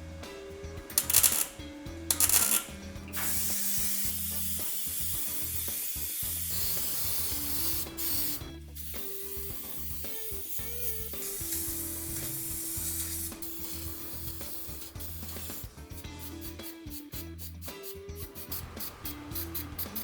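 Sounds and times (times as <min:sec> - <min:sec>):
hissing spray: 0:00.9 - 0:20.0.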